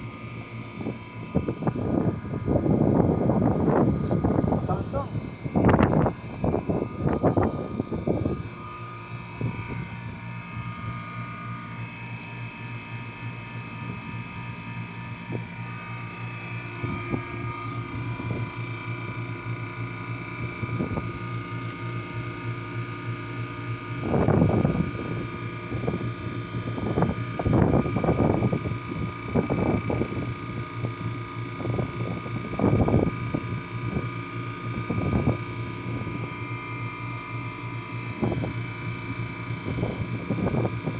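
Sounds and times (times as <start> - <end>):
compressor humming and whining: 0.0 - 40.9.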